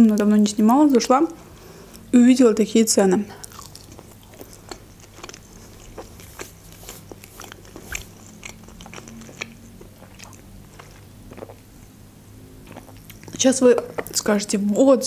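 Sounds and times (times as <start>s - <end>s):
chewing with mouth clicks: 3.4s - 12.0s, 12.6s - 14.5s.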